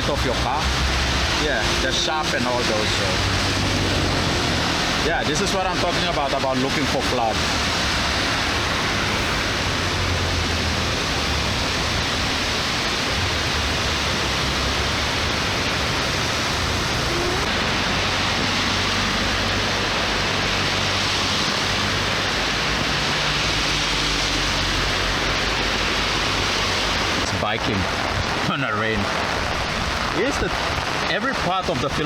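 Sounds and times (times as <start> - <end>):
low rumble: 0.0 - 21.3
heavy rain and floodwater rushing: 0.0 - 32.0.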